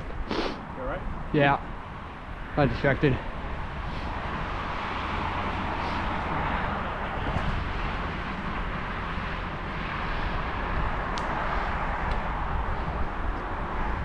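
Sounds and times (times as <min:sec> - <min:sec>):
rumble of bicycle tyres on road: 0:00.0 - 0:14.0
wind on microphone: 0:00.0 - 0:14.0.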